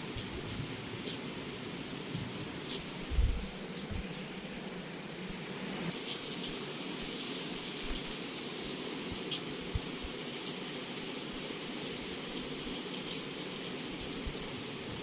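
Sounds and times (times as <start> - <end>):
heavy rain against a window: 0.0 - 15.0
faint low thumps: 3.1 - 3.5.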